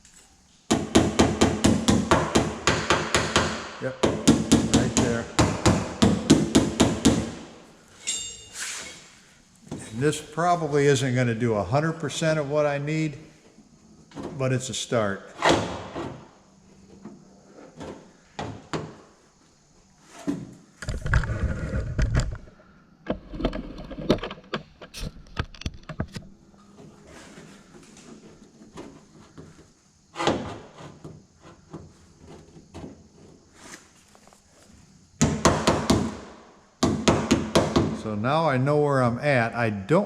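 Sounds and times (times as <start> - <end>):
hammer tapping on sheet metal: 0.7 - 7.4
tool bumping inside car door: 0.7 - 7.4.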